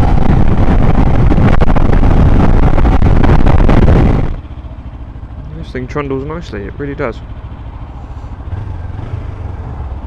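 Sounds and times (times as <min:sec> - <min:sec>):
wind buffeting microphone: 0:00.0 - 0:05.5.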